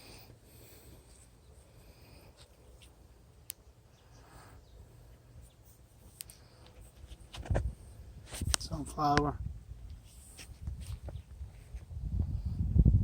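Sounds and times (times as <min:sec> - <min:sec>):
wind rumble on microphone: 0:07.4 - 0:13.0.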